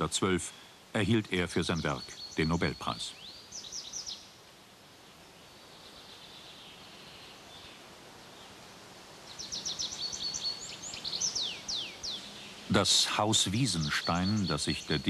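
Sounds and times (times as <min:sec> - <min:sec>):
faint hiss: 0:00.0 - 0:15.0
songbird singing: 0:00.0 - 0:15.0.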